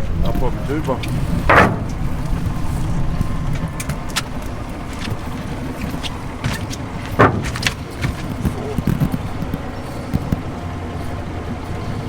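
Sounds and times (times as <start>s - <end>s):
engine rumbling: 0.0s - 12.0s
short knock: 6.5s - 8.4s.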